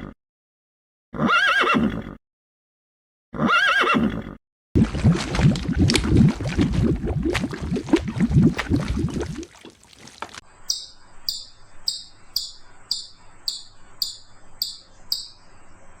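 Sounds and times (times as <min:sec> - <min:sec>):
high chirping calls: 0:10.5 - 0:16.0.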